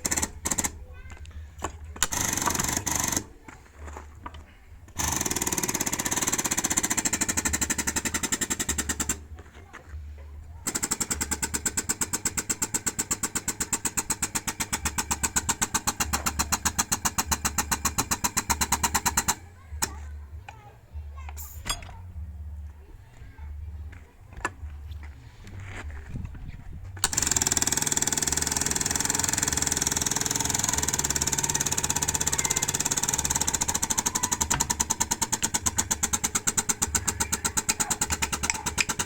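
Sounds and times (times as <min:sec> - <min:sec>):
pneumatic impact wrench hammering: 0:00.0 - 0:00.8, 0:01.6 - 0:03.3, 0:04.9 - 0:09.3, 0:10.6 - 0:20.0, 0:21.3 - 0:22.0, 0:27.0 - 0:39.0.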